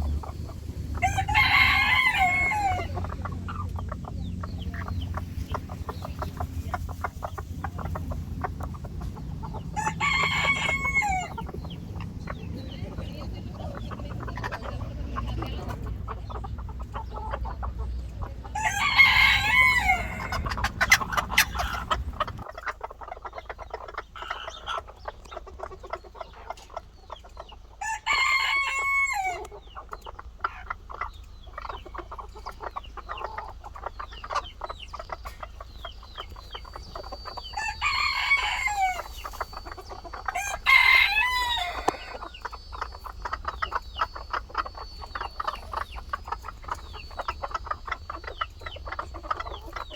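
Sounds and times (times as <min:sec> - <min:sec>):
chickens clucking: 0:00.0 - 0:49.9
rooster crowing: 0:01.0 - 0:03.1, 0:09.8 - 0:11.4, 0:18.6 - 0:20.5, 0:27.8 - 0:29.4, 0:37.5 - 0:39.2, 0:40.3 - 0:42.3.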